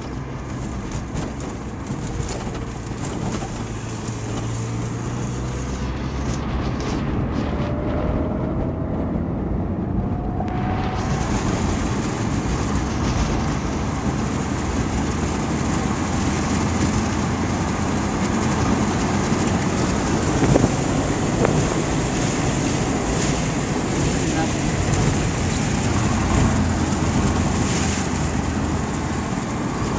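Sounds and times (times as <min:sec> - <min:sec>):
steady rumbling of movement: 0:00.0 - 0:29.9
wind on microphone: 0:00.7 - 0:29.9.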